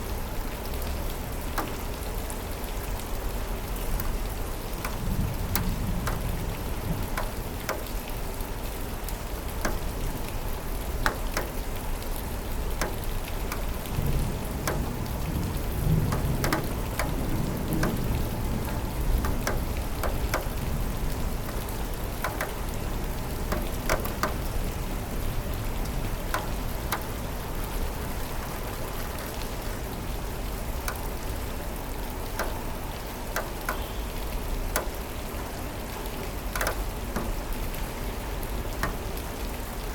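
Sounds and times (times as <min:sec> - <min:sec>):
raindrops ticking on surface: 0:00.0 - 0:39.9
steady rain falling: 0:00.0 - 0:39.9
low rumble of thunder: 0:04.8 - 0:07.6, 0:13.8 - 0:22.1.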